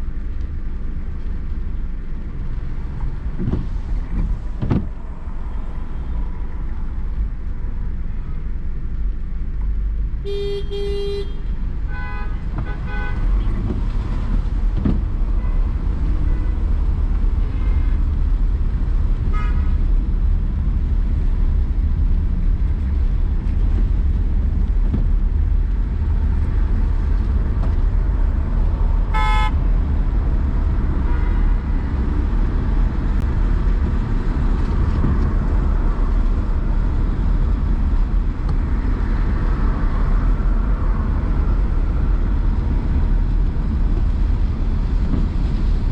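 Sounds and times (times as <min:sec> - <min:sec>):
car road and engine rumble: 0:00.0 - 0:45.9
car horns tooting: 0:10.2 - 0:13.6, 0:29.1 - 0:29.6.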